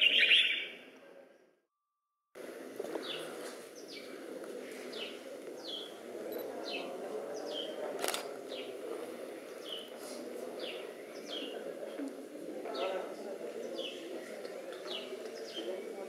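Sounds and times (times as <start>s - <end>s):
bird chirping: 0.0s - 0.9s.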